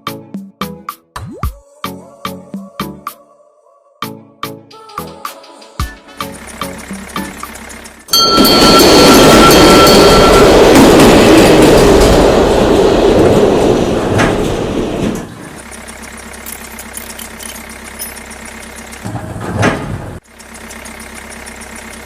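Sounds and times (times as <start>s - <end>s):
motor running: 6.3s - 8.1s, 15.6s - 19.1s.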